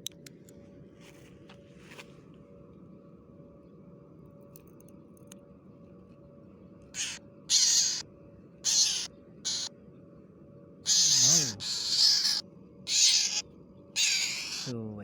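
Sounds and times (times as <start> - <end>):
low steady hum: 0.0 - 15.0
bird squawking: 7.0 - 8.0, 8.6 - 9.7, 10.9 - 13.4, 14.0 - 14.8.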